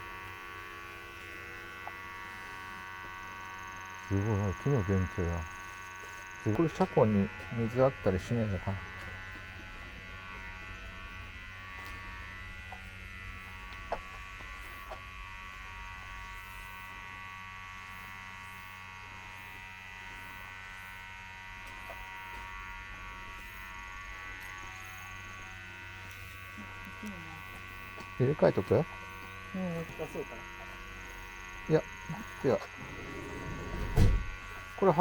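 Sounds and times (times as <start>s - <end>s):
electrical buzz: 29.8s - 35.0s.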